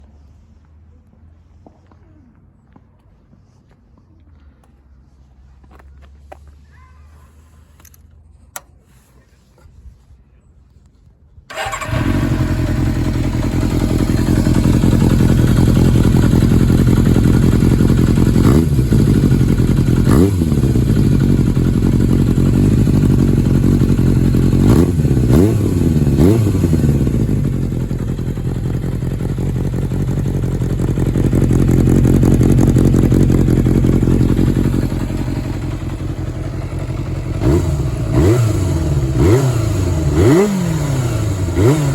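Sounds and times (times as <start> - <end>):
engine revving: 11.5 - 16.3, 22.5 - 27.6, 37.3 - 41.9
motorcycle engine idling: 11.5 - 41.9
motorcycle engine starting: 11.5 - 41.9.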